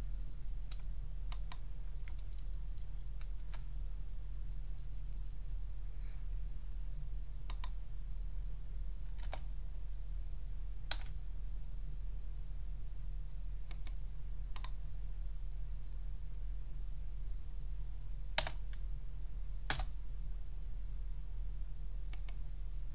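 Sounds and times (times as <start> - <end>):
faint high whine: 0.0 - 22.9
low electrical hum: 0.0 - 22.9
computer keyboard clicks: 0.7 - 3.6, 7.5 - 7.8, 9.1 - 9.4, 10.9 - 11.2, 13.7 - 14.8, 18.4 - 18.7, 19.7 - 19.9.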